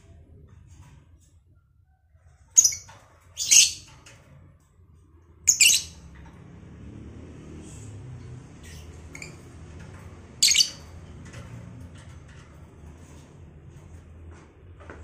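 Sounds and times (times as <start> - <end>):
lovebirds squawking: 3.4 - 3.9, 5.5 - 6.0, 10.4 - 10.8.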